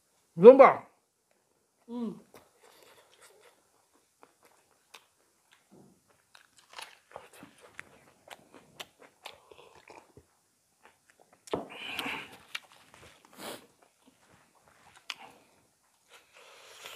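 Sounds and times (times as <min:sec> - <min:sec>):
chewing with wet mouth clicks: 0:02.3 - 0:12.8
food crunching: 0:02.3 - 0:16.9.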